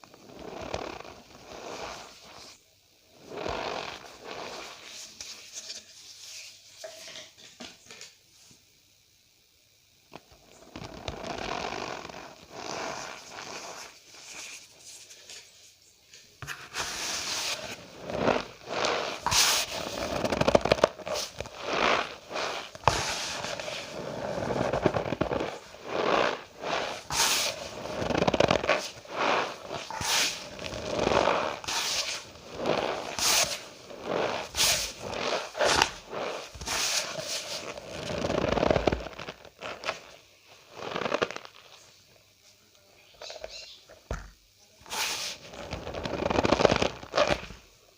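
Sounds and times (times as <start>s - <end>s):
cornstarch squeaky crunching: 16.4s - 41.8s, 44.8s - 47.5s.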